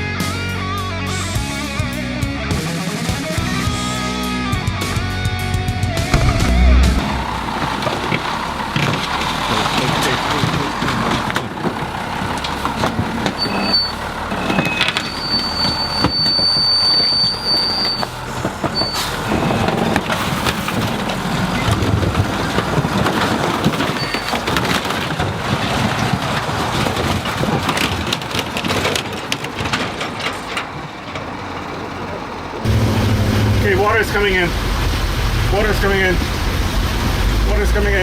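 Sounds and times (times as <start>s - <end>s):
truck engine running: 0.0s - 38.0s
car body crunching and cracking: 6.1s - 31.7s.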